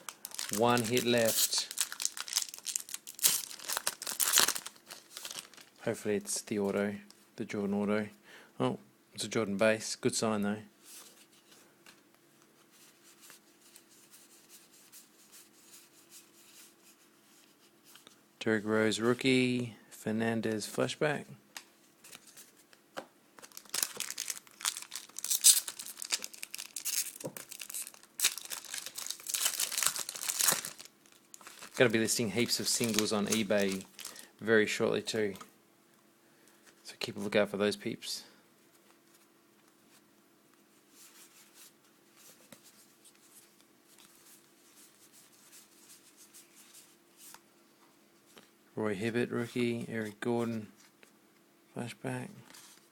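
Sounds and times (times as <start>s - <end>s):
card pack wrapper crinkling and tearing: 0.0s - 5.8s, 23.4s - 34.3s.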